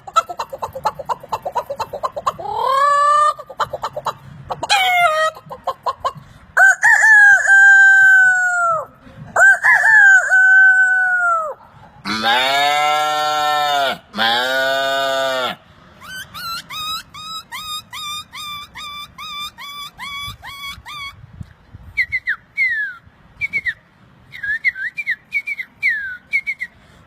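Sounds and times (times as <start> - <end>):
man imitating chicken clucking: 0.0 - 21.2
man imitating rooster crows: 6.6 - 15.6.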